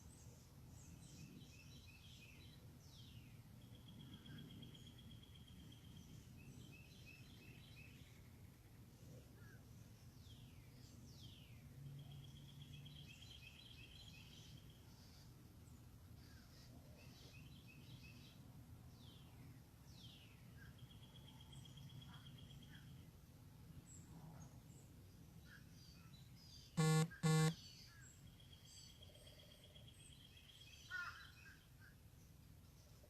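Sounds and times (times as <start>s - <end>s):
loud honk-like bird notes: 26.8s - 27.6s.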